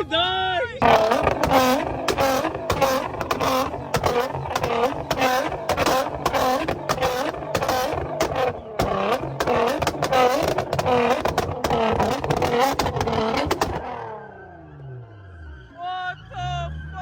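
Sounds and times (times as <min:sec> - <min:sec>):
car engine revving: 0:00.0 - 0:17.0
exhaust pops: 0:00.8 - 0:14.1.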